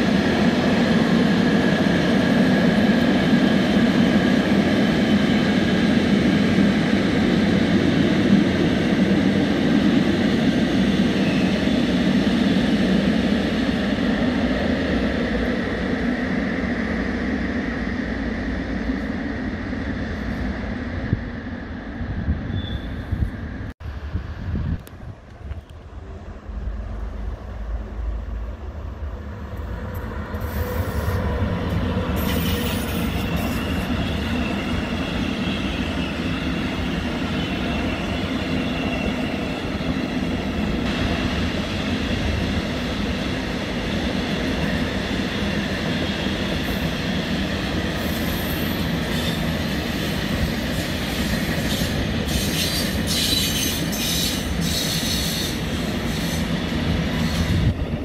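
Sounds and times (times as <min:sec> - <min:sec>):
freight train wheels rumbling: 0:00.0 - 0:58.0
high-pitched wheel squeal: 0:22.5 - 0:23.2.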